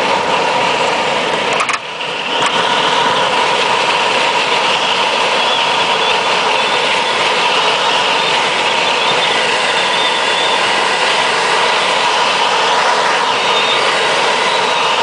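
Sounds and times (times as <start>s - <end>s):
loud airflow rush in cockpit: 0.0s - 15.0s
faint steady whistling tones: 2.0s - 15.0s.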